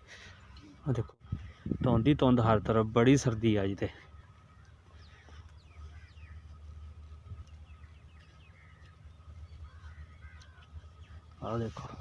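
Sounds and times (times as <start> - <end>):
faint bird chirps: 4.0 - 12.0
low steady rumble: 4.2 - 11.4.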